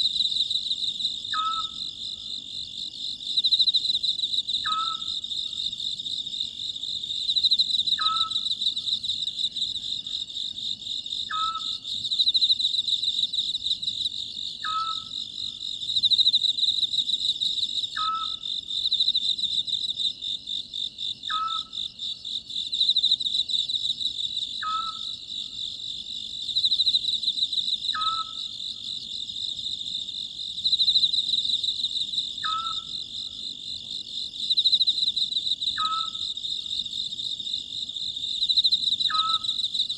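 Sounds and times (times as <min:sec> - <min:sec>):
chirring insects: 0:00.0 - 0:39.9
owl calling: 0:01.3 - 0:01.8, 0:04.6 - 0:05.1, 0:08.0 - 0:08.4, 0:11.3 - 0:11.8, 0:14.6 - 0:15.1, 0:18.0 - 0:18.4, 0:21.3 - 0:21.7, 0:24.6 - 0:25.1, 0:27.9 - 0:28.4, 0:32.4 - 0:32.9, 0:35.8 - 0:36.2, 0:39.1 - 0:39.5.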